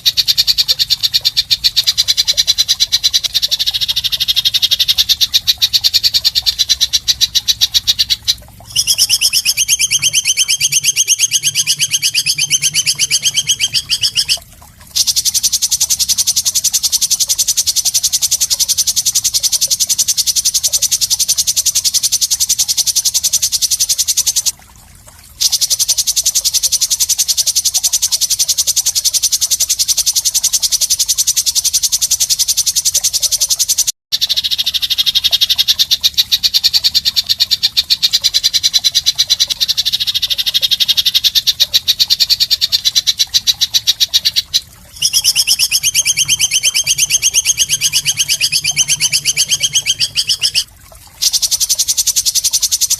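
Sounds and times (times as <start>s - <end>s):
fast high-pitched bird trill: 0.0s - 14.4s, 36.3s - 52.9s.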